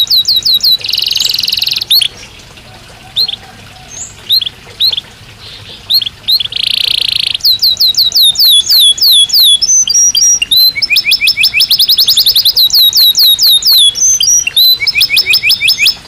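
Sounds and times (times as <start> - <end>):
canary singing: 0.0 - 16.0.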